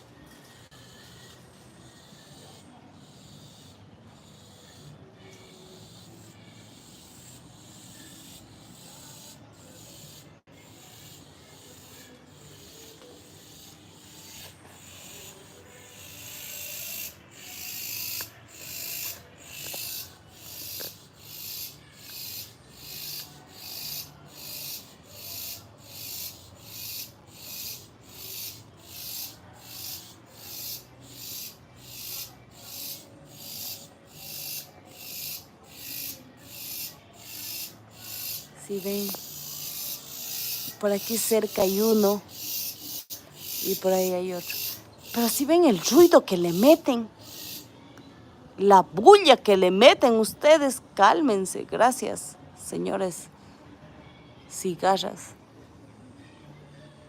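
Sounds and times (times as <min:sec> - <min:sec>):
cicadas buzzing: 0:02.1 - 0:47.7.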